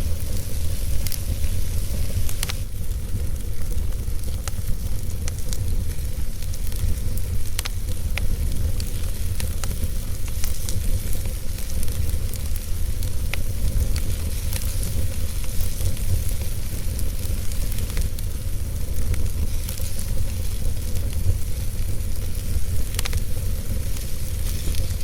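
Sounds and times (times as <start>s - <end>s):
fireplace fire crackling: 0.0s - 25.0s.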